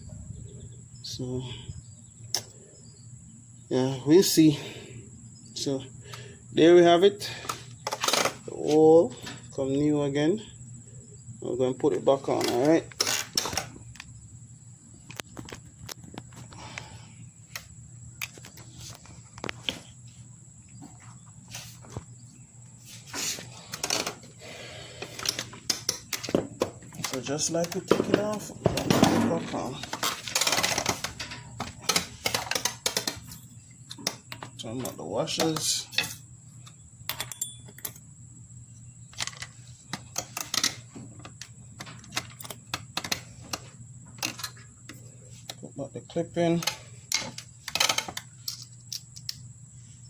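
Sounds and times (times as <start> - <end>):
metal hardware clicks and knocks: 25.2 - 36.2, 37.1 - 38.0.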